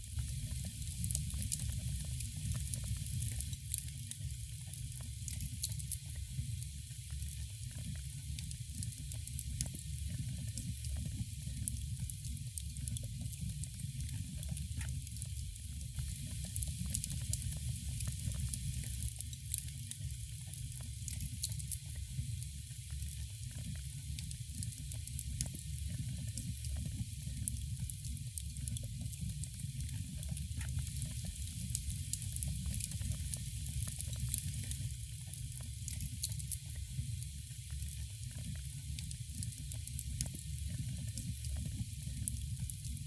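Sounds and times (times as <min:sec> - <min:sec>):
wood fire crackling: 0:28.7 - 0:36.8.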